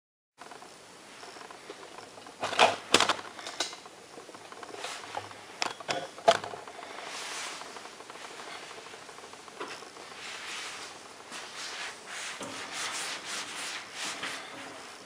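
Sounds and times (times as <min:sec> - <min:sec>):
low steady hiss: 0:00.4 - 0:15.0
clicks and knocks of handling: 0:01.4 - 0:06.8.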